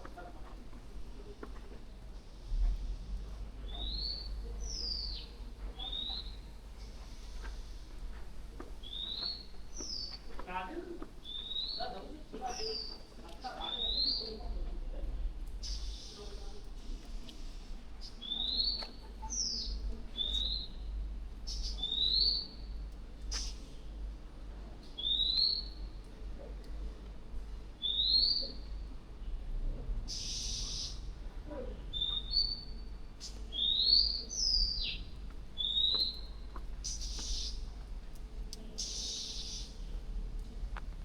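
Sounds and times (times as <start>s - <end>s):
harsh hissing bird calls: 15.6s - 16.4s, 30.1s - 31.1s, 36.8s - 37.7s, 38.8s - 39.9s
low background rumble: 31.0s - 41.0s.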